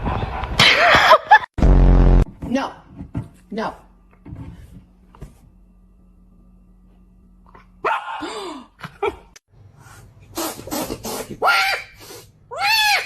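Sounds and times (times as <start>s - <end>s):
dog barking: 7.8s - 8.2s.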